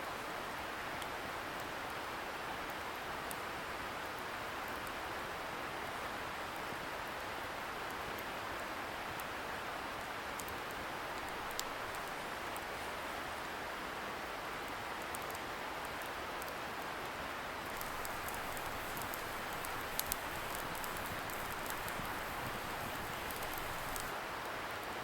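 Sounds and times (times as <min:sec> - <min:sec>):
campfire crackling and popping: 0:11.2 - 0:12.3, 0:17.7 - 0:24.2
river rushing: 0:17.8 - 0:24.2.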